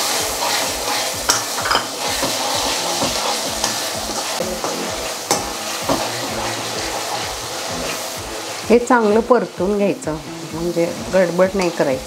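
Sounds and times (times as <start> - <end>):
onions sizzling in hot oil: 0.0 - 12.0
spatula scraping and clicking pan: 0.4 - 7.2.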